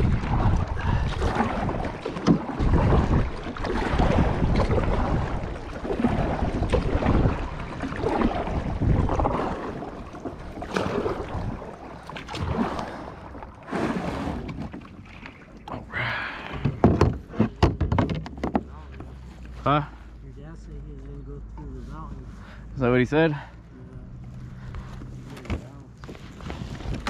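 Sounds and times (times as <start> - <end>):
wind buffeting microphone: 0.0 - 13.4
paddle water sounds: 0.0 - 27.0.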